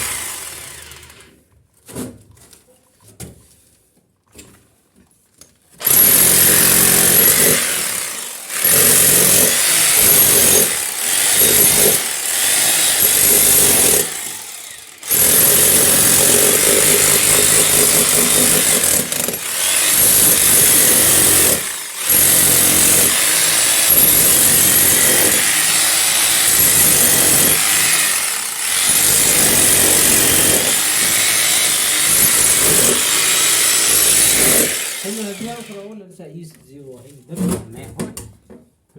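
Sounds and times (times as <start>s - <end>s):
hammer drill breaking masonry: 5.8s - 35.8s.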